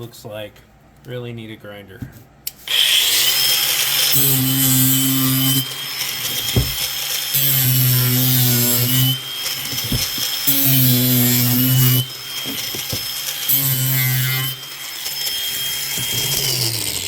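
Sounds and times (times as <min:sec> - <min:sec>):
power tool high whine: 0:02.7 - 0:17.0.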